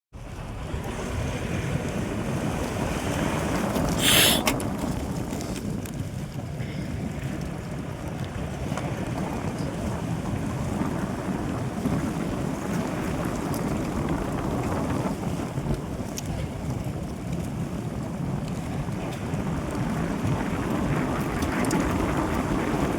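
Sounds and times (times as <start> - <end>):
wind buffeting microphone: 0.2 - 22.9
loud hissing rush: 4.0 - 4.5.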